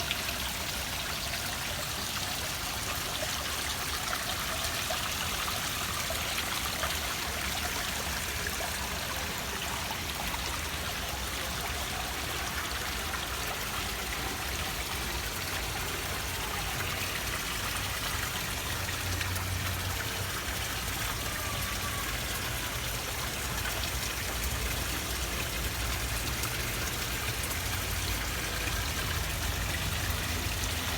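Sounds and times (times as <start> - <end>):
fountain water splashing: 0.0 - 30.9.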